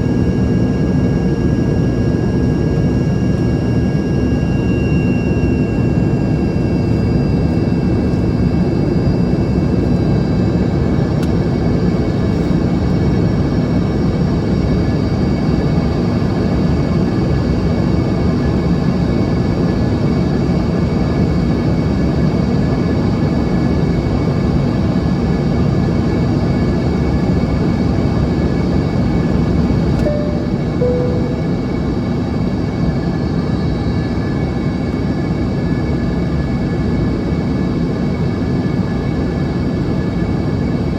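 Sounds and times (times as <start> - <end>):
airplane cabin roar: 0.0 - 17.4, 26.7 - 37.0
high jet engine whine: 0.0 - 40.9.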